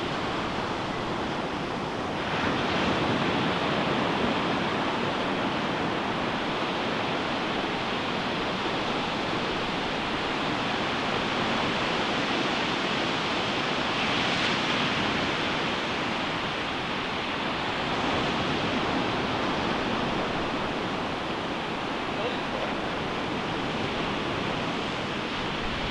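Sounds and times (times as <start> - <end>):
ocean surf breaking on beach: 0.0 - 25.9.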